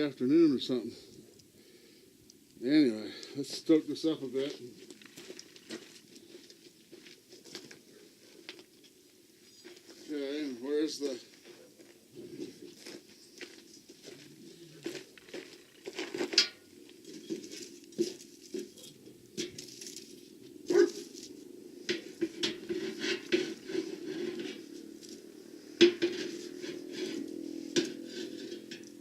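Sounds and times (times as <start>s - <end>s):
wood and metal knocking: 25.8s - 29.0s.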